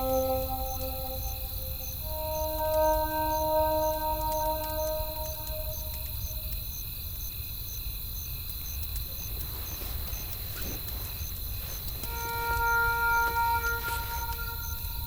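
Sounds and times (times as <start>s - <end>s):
bell-like music tones: 0.0s - 6.1s, 12.1s - 15.0s
crickets chirping: 0.0s - 15.0s.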